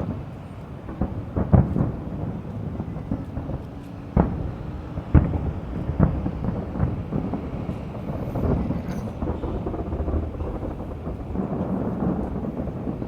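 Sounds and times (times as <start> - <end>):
fireworks shells bursting: 0.0 - 13.0
steady low rumble: 0.0 - 13.0.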